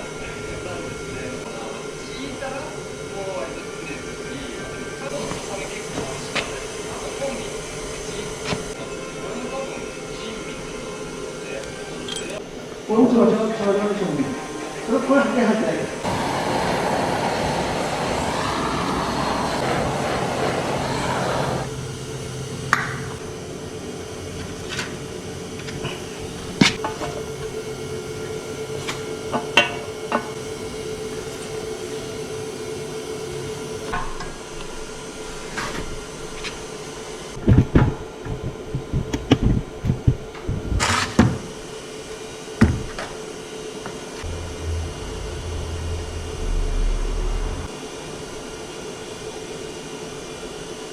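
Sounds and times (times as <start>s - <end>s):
steady mechanical hum: 0.0s - 48.7s
tools clicking and knocking: 12.1s - 12.4s
rushing noise: 16.0s - 22.0s, 44.2s - 48.0s
low thumps: 44.2s - 47.7s.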